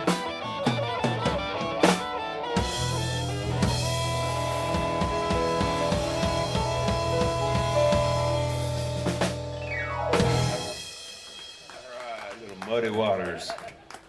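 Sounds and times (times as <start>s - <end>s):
held keyboard notes: 0.0s - 10.9s
blues band playing: 0.0s - 12.8s.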